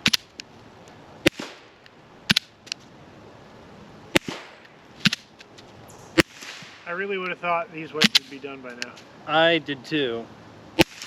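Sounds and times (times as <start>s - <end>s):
suppressed pistol shots: 1.2s - 2.6s, 4.1s - 5.3s, 6.1s - 6.8s, 8.0s - 8.3s, 10.8s - 11.0s.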